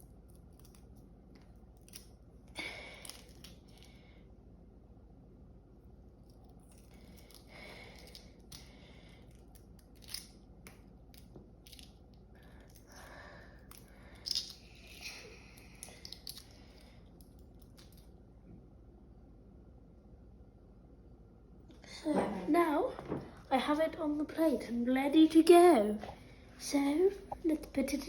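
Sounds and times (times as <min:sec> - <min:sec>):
eggshell crackling and clicking: 0:13.6 - 0:18.2.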